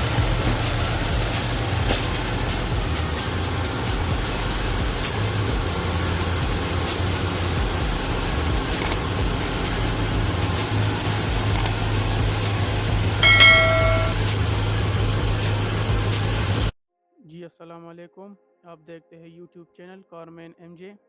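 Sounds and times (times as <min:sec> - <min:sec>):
engine idling: 0:00.0 - 0:16.7.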